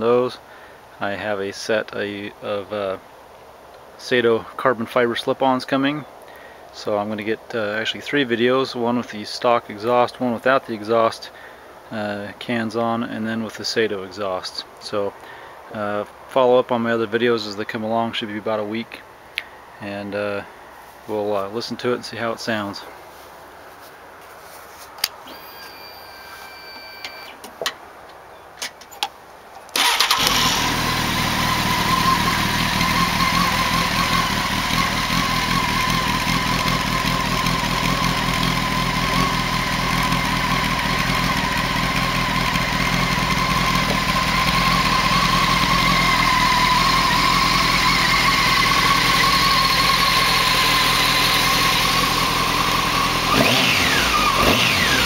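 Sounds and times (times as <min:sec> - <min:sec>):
motorcycle engine idling: 0:29.8 - 0:55.0.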